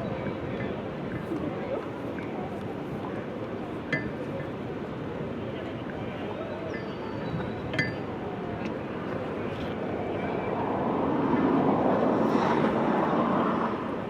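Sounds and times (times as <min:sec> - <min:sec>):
engine passing by: 0:10.3 - 0:14.0.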